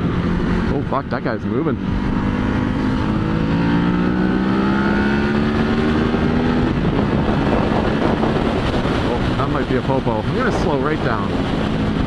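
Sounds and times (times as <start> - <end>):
motorcycle engine under throttle: 0.0 - 12.0
wind and road noise: 0.0 - 12.0.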